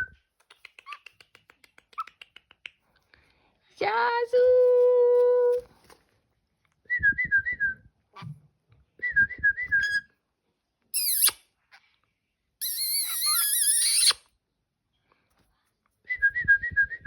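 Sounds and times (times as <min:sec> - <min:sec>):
parrot high falling squeal: 0:11.0 - 0:11.4, 0:12.6 - 0:14.2
parrot shrill warbling call: 0:11.0 - 0:11.4, 0:12.6 - 0:14.2
parrot warbling whistles: 0:11.0 - 0:11.4, 0:12.6 - 0:14.2.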